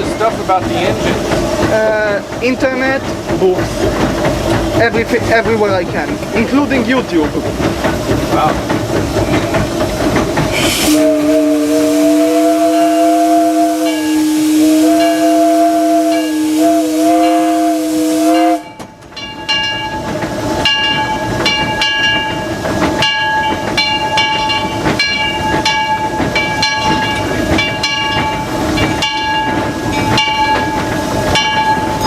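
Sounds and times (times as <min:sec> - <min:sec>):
locomotive rhythmic chuffing: 0:00.0 - 0:32.0
steam hiss: 0:09.6 - 0:18.6
steam whistle chord: 0:10.6 - 0:18.7.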